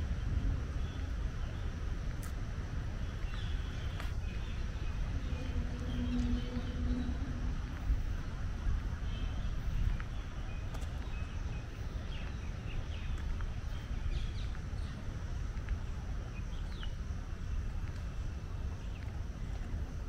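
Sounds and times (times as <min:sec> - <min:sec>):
low park rumble: 0:00.0 - 0:20.0
small birds chirping: 0:03.0 - 0:15.2.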